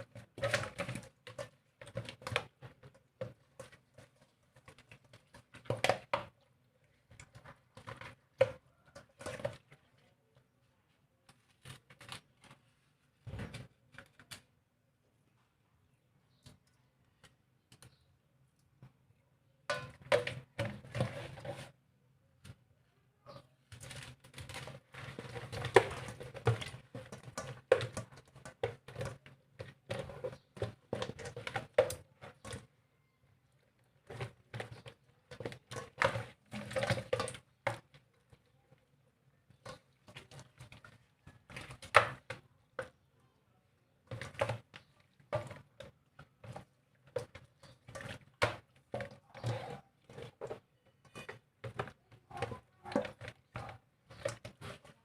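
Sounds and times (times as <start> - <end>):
kitchen things knocking and clattering: 19.7 - 21.5.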